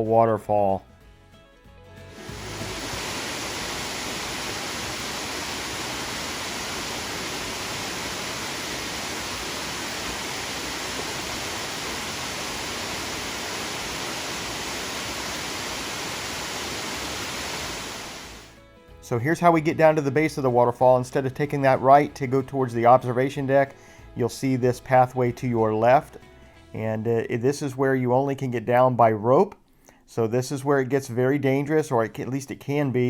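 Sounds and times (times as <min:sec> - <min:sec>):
waterfall rushing: 0:02.1 - 0:18.5.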